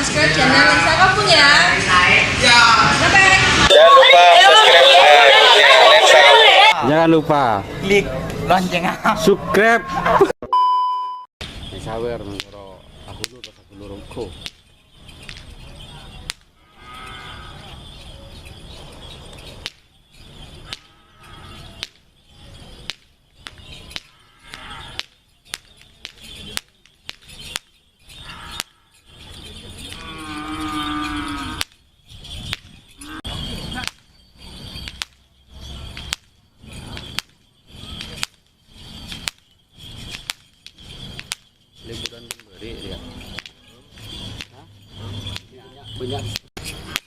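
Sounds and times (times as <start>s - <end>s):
sharp cracks: 20.6s - 20.9s, 21.6s - 30.0s, 31.6s - 31.8s, 33.7s - 35.3s, 35.9s - 42.6s.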